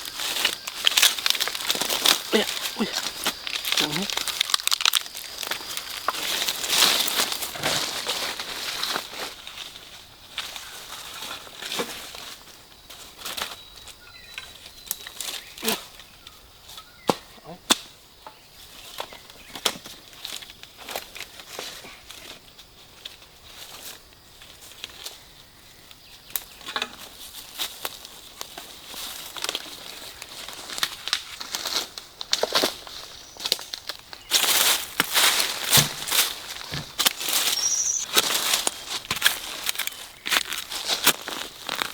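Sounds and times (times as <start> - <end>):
twigs snapping: 0.0 - 7.7, 30.7 - 32.8, 33.4 - 41.9
dry leaves rustling: 0.0 - 16.7, 26.4 - 41.9.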